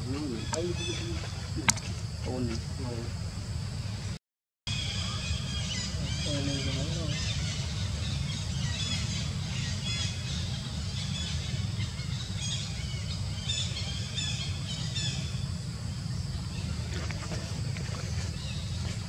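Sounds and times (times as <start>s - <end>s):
birds chirping and calling: 0.0s - 2.5s, 4.7s - 15.5s.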